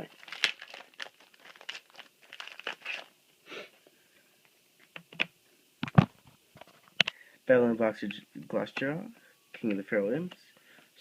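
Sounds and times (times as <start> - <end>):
wrapper crinkling and tearing: 0.0 - 3.1.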